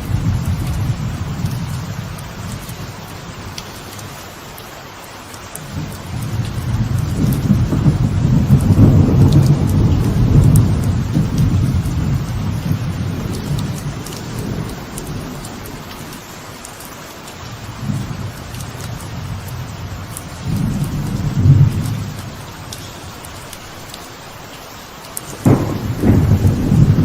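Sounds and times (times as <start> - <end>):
thunder rolling: 0.0 - 3.6, 5.6 - 16.2, 17.6 - 22.7, 25.3 - 27.0
light rain falling: 0.0 - 27.0
water drips: 0.0 - 27.0.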